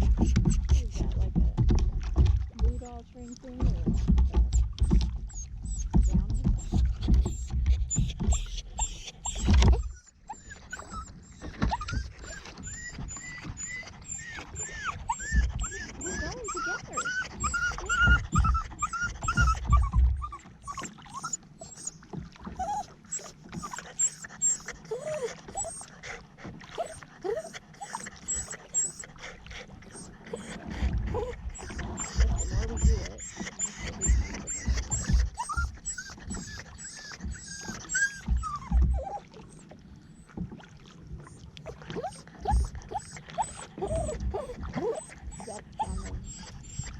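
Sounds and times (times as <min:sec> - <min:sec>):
low bumps: 0:00.0 - 0:21.2
water and paddle sounds: 0:00.0 - 0:46.9
dog whining: 0:04.5 - 0:40.3, 0:41.3 - 0:46.9.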